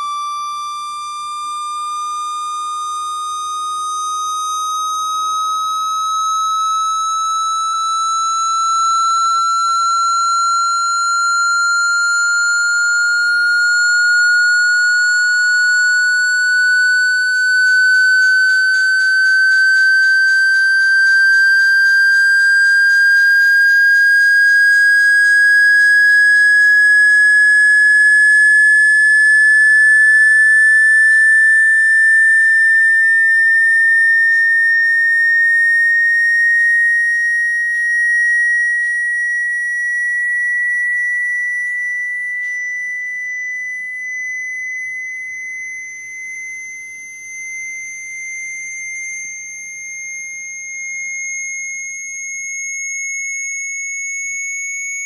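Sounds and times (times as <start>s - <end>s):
high whistling tone rising: 0.0s - 55.0s.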